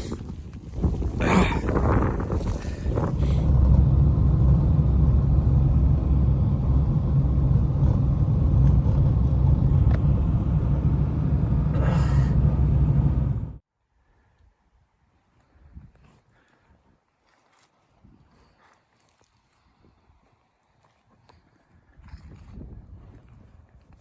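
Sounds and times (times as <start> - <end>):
wind buffeting microphone: 0.0 - 13.6, 21.7 - 24.0.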